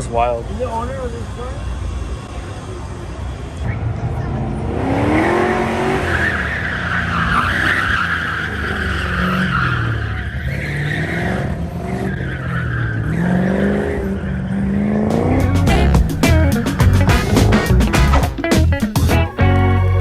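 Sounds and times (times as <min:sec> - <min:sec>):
car engine revving: 0:03.6 - 0:19.6
tyres squealing: 0:06.0 - 0:13.5, 0:15.1 - 0:20.0
music: 0:15.1 - 0:20.0.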